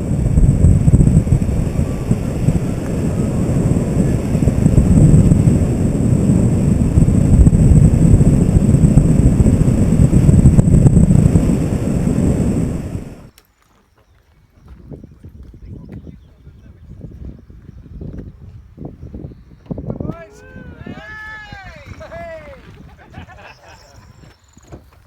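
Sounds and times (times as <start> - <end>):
wind buffeting microphone: 0.0 - 13.3, 14.2 - 25.0.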